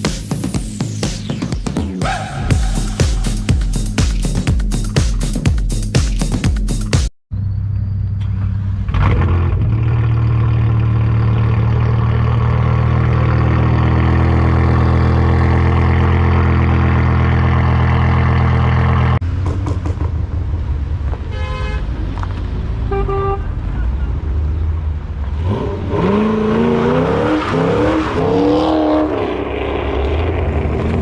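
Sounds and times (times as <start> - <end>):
car engine and exhaust running: 7.3 - 22.3
car horn: 21.2 - 22.0, 22.8 - 24.2.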